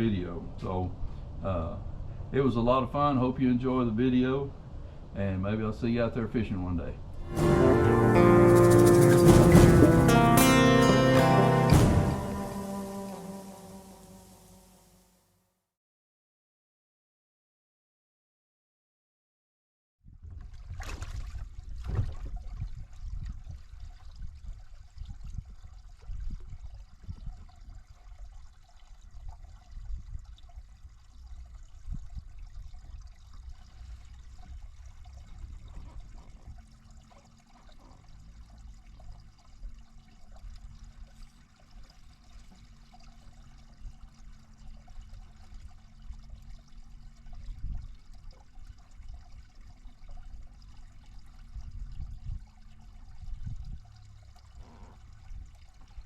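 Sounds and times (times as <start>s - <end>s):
low rumbling thumps: 7.2s - 13.1s
water lapping against a boat: 20.2s - 56.0s.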